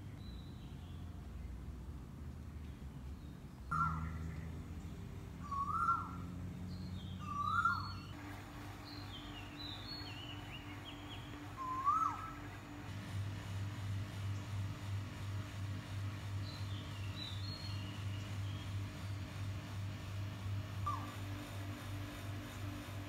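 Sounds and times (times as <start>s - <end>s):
bird whistled call: 3.7s - 4.1s, 5.4s - 6.2s, 7.2s - 8.1s, 11.6s - 12.4s, 20.8s - 21.2s.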